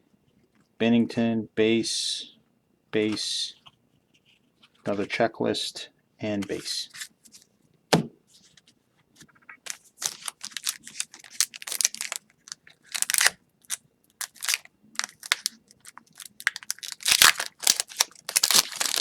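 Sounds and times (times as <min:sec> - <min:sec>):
plastic wrapper crinkling and tearing: 0:09.6 - 0:19.0.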